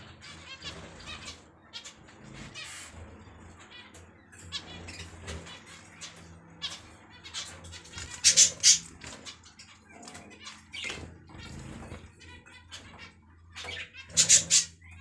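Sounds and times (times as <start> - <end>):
cage birds chirping: 0.0 - 15.0
shrill bird calls: 8.0 - 8.9, 13.7 - 14.8.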